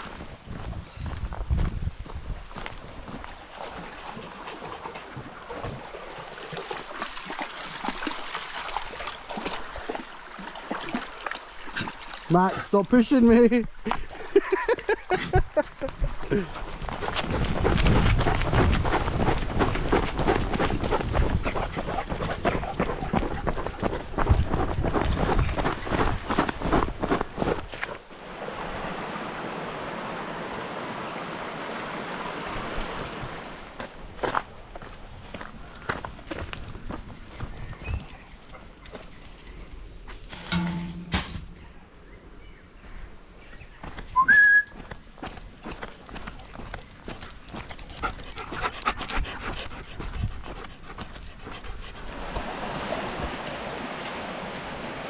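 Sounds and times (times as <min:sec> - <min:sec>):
running water rushing: 0:03.0 - 0:14.3, 0:28.1 - 0:34.1, 0:52.0 - 0:55.0
paw steps: 0:15.8 - 0:28.1, 0:44.8 - 0:52.4
dog panting and whimpering: 0:20.5 - 0:24.7, 0:47.5 - 0:52.2.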